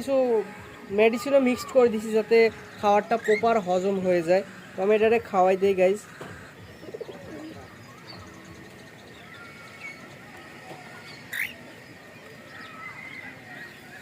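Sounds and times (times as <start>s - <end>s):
bird chicks chirping: 2.0s - 10.2s.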